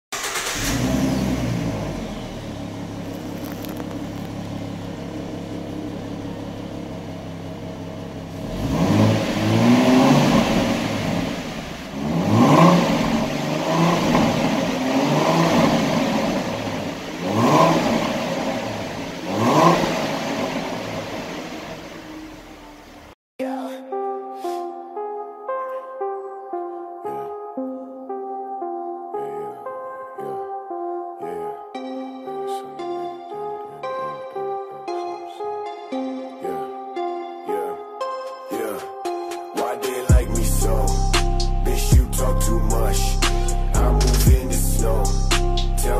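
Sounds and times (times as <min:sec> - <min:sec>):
car engine idling and revving: 0:00.1 - 0:23.2, 0:40.1 - 0:45.9.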